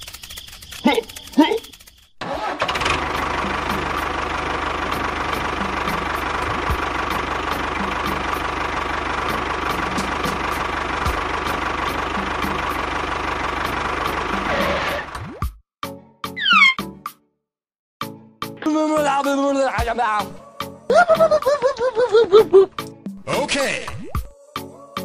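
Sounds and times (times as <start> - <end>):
faint regular ticking: 0.0 - 2.2
model tractor engine drone: 1.7 - 15.2.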